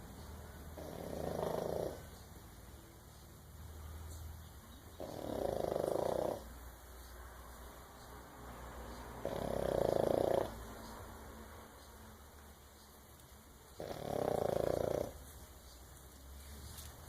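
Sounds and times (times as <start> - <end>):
dog snoring: 0.8 - 2.2, 5.0 - 6.5, 9.2 - 10.7, 13.8 - 15.2.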